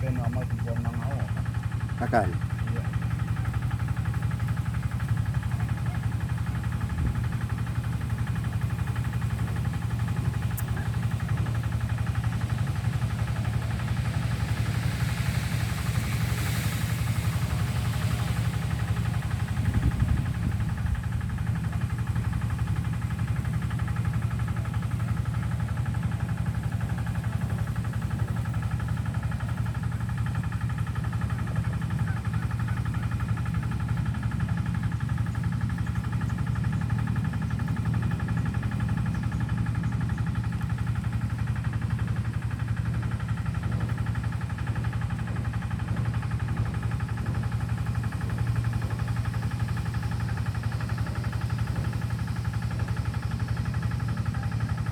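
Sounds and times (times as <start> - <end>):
engine humming steadily: 0.0 - 54.9.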